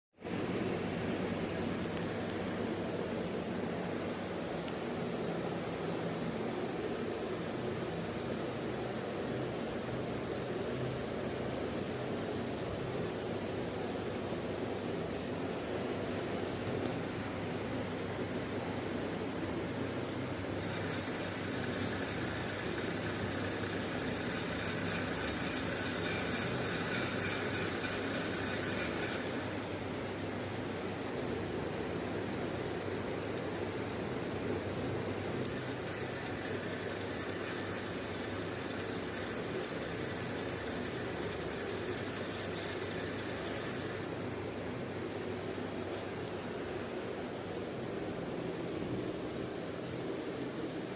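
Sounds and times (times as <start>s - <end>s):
small electric motor whining: 20.6s - 29.6s, 35.5s - 44.1s.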